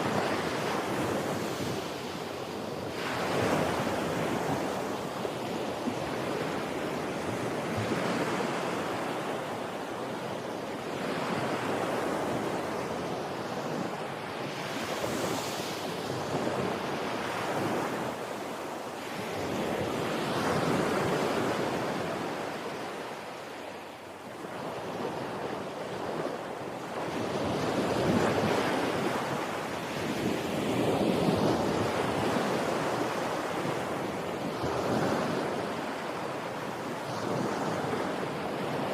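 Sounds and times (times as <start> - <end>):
sea waves breaking on shore: 0.0 - 38.9
wind on microphone: 24.5 - 38.9.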